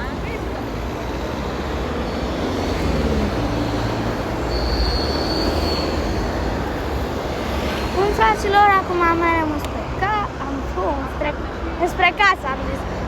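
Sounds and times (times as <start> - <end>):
road traffic rumbling: 0.0 - 13.0
high-pitched squeal: 1.0 - 7.0.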